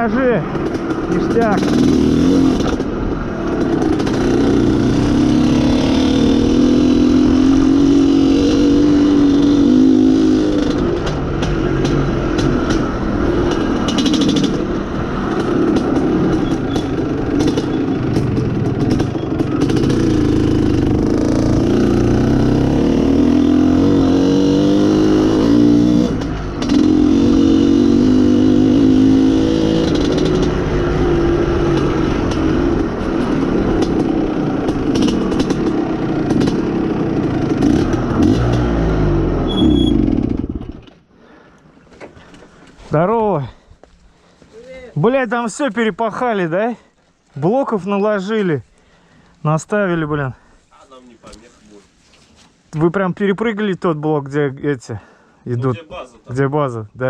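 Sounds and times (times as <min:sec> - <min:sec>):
two-stroke motorcycle engine revving: 0:00.0 - 0:40.8.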